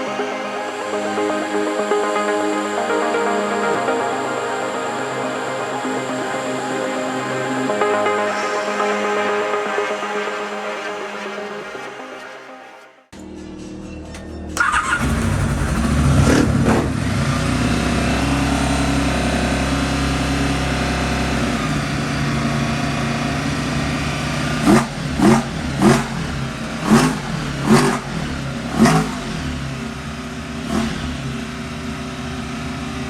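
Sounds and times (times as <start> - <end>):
motorcycle engine revving: 14.6 - 33.0.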